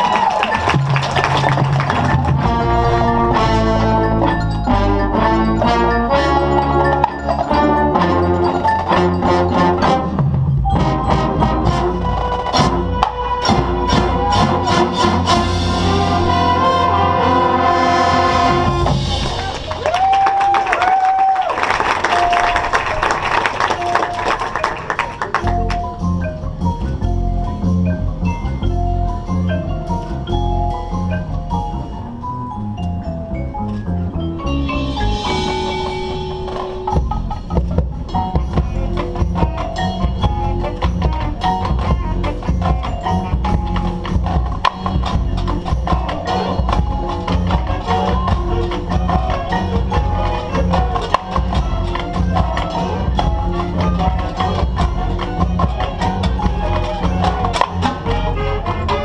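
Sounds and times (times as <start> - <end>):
marching band chords: 0.0 - 20.5, 21.7 - 59.0
marimba and xylophone notes: 0.0 - 21.0, 21.9 - 59.0.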